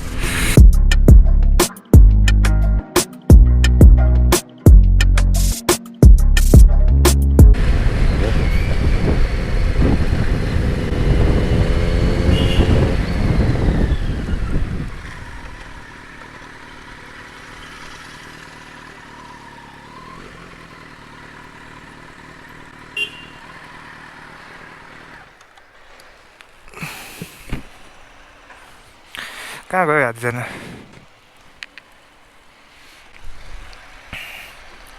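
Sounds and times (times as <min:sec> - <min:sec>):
wind rushing: 0:00.0 - 0:01.0, 0:07.5 - 0:15.4
motorcycle engine running: 0:07.4 - 0:25.4.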